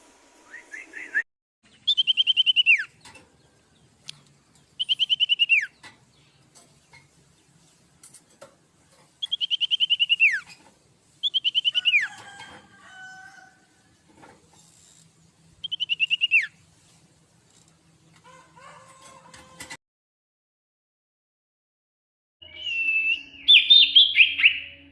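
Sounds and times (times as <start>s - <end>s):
bird singing high notes: 22.4s - 24.9s.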